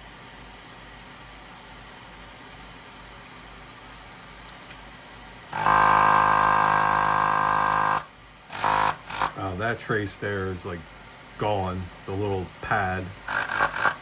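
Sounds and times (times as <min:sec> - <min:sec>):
desoldering vacuum pump running: 0:02.5 - 0:14.0
low steady hiss: 0:09.4 - 0:13.2.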